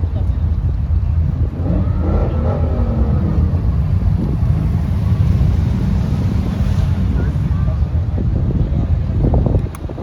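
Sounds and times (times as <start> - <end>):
wind rumble on microphone: 0.0 - 10.0
car engine revving: 1.4 - 7.9.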